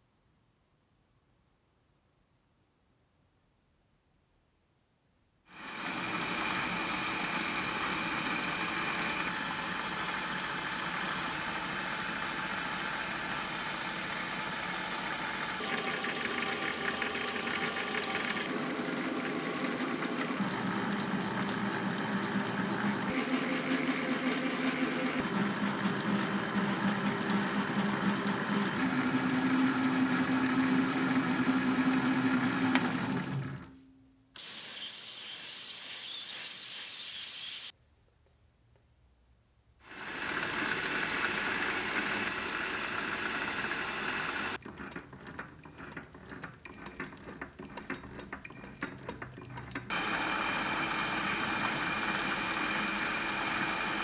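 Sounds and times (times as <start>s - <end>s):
power tools machine noise: 5.5s - 33.6s, 34.4s - 37.7s, 39.9s - 45.0s, 49.9s - 54.0s.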